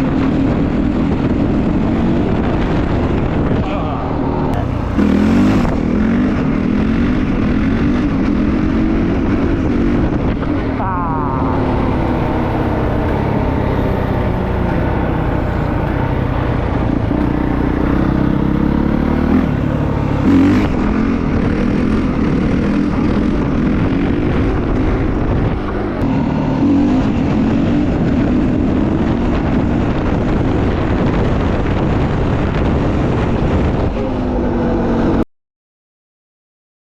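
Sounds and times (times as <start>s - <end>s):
dirt bike engine revving: 0.0s - 31.1s.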